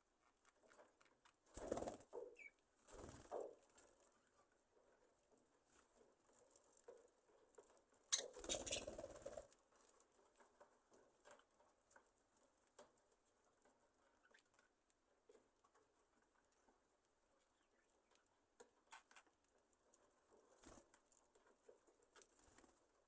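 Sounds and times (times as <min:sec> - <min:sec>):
birds tapping and scratching: 0:00.1 - 0:23.0
flurry of wings: 0:01.5 - 0:04.0, 0:08.1 - 0:09.6.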